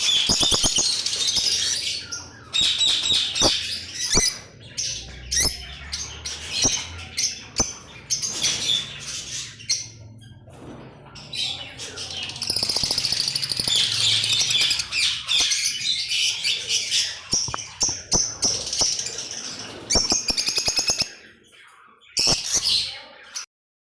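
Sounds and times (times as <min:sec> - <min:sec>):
parrots chirping and chattering: 0:00.0 - 0:23.5
sharp clicks: 0:12.5 - 0:15.5, 0:17.3 - 0:19.0.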